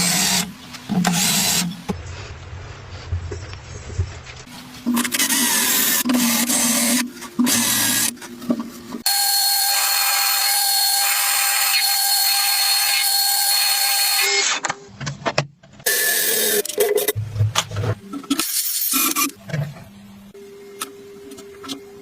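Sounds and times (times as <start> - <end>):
power tool whining: 9.0 - 14.6.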